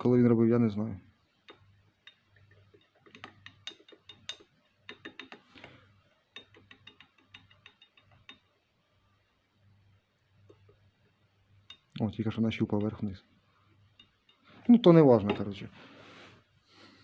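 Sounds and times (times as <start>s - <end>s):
faint metallic clicking: 1.3s - 8.7s, 10.2s - 15.7s.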